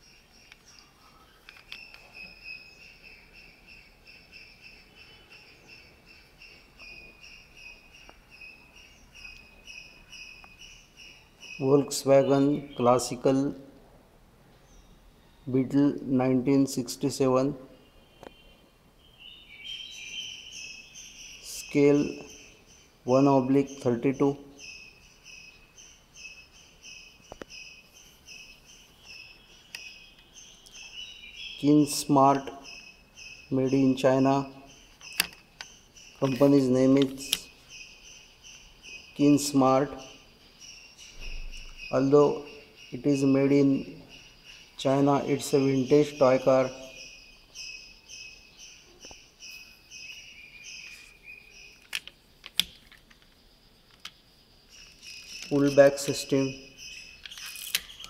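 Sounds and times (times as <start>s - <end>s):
crickets chirping: 0.0s - 13.8s, 14.6s - 58.0s
sharp clicks: 35.0s - 37.5s, 51.7s - 54.2s.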